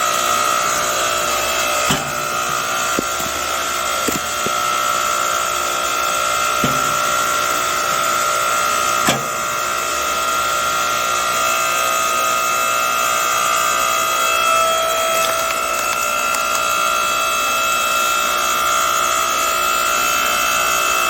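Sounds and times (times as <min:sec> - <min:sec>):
log splitter motor whine: 0:00.0 - 0:21.0
wood knocking under ram: 0:01.8 - 0:04.6, 0:06.6 - 0:07.2.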